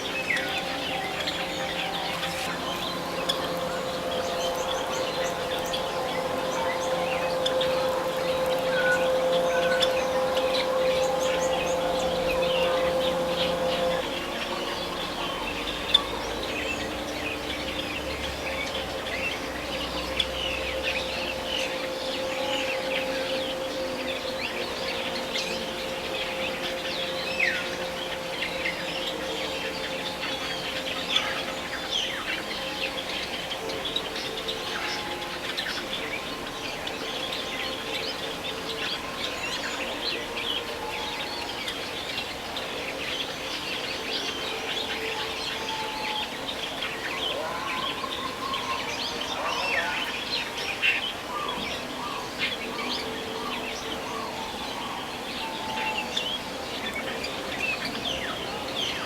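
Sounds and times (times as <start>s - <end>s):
steady low hum: 0.0s - 40.8s.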